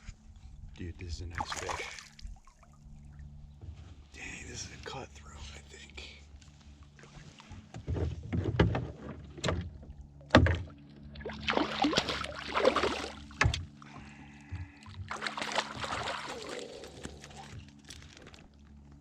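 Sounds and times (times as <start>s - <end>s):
splashing or rustling: 1.4s - 3.4s, 6.8s - 13.8s, 14.6s - 18.8s
knocks and thumps against kayak: 7.3s - 12.2s, 13.3s - 16.0s.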